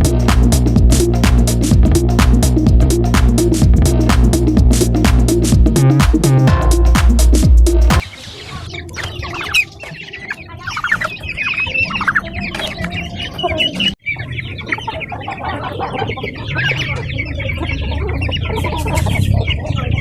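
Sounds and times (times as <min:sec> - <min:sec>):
chickens and turkeys calling: 0:08.0 - 0:20.0.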